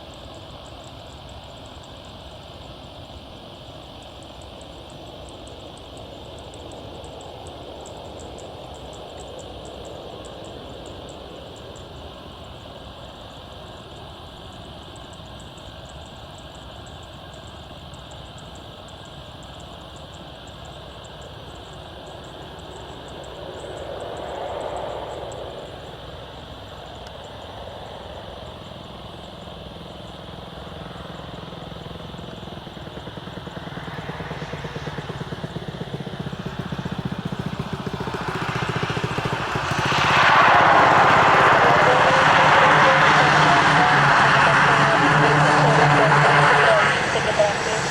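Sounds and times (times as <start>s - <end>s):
aircraft engines roaring: 18.2s - 47.9s.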